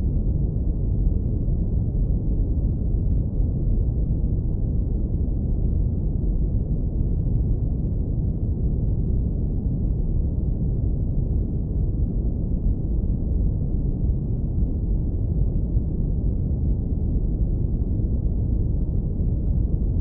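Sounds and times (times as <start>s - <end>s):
deep brown noise rumble: 0.0s - 20.0s.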